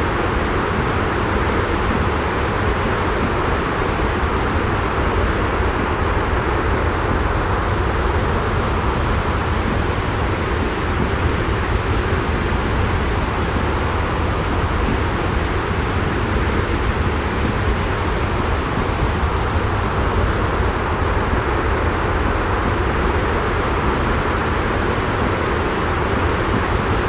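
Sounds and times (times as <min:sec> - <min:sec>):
white noise rush with low rumble: 0:00.0 - 0:27.0.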